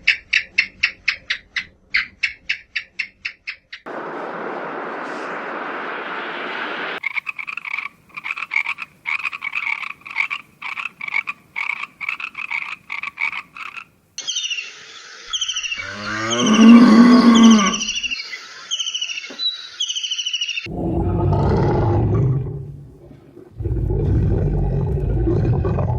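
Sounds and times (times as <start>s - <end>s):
rapid croaking calls: 7.0s - 20.7s
high falling chirps: 14.2s - 20.7s
cow mooing: 15.8s - 18.0s.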